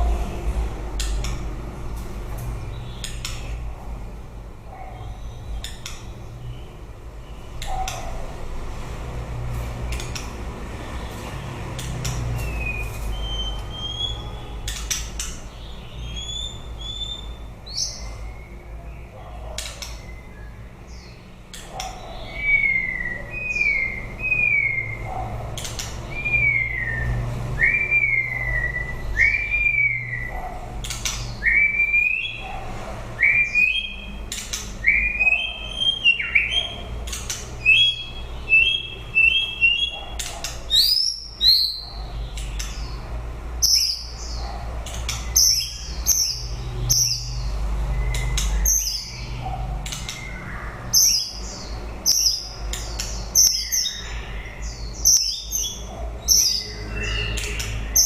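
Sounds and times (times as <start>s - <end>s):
bird singing whistled notes: 12.4s - 18.8s, 21.8s - 25.1s, 26.1s - 32.4s, 33.2s - 36.8s, 37.6s - 40.0s, 40.7s - 43.0s, 45.1s - 58.0s.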